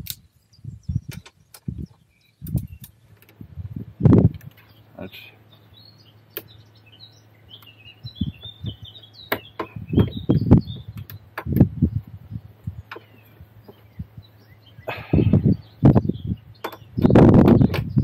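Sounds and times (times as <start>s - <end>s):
birds chirping: 0.0s - 18.0s
tools knocking and clunking: 9.3s - 10.2s.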